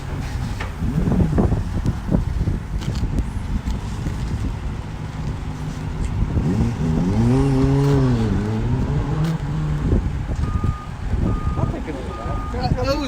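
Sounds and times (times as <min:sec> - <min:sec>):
motorbike accelerating past: 0:06.3 - 0:10.0.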